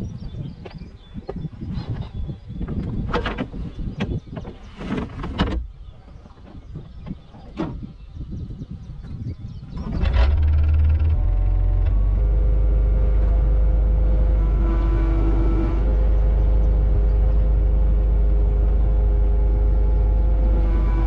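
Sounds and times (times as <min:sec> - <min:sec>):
hydraulics whining: 0:09.7 - 0:21.0
excavator diesel engine running: 0:09.8 - 0:21.0.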